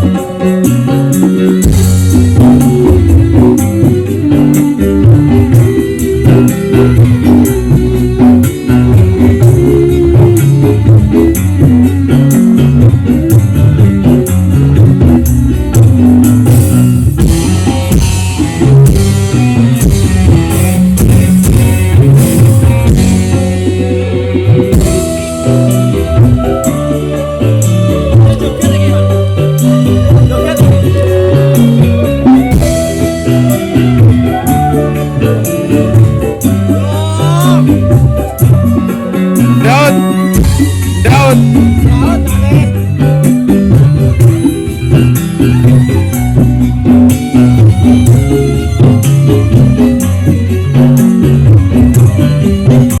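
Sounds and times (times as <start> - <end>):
loud band music: 0.0 - 53.0.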